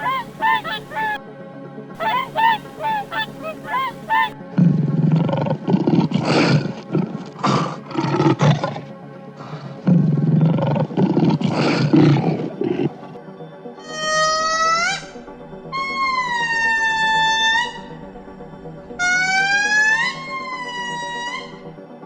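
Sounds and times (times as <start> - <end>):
geese honking: 0.0 - 1.2, 2.0 - 4.4
big cat growling: 5.2 - 9.0, 9.6 - 13.1.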